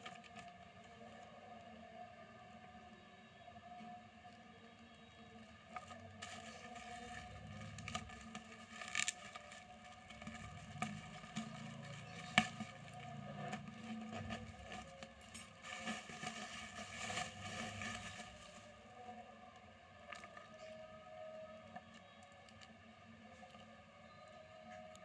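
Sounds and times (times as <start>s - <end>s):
sharp crackles and snaps: 5.3s - 18.9s
plastic packaging crinkling: 5.7s - 19.1s.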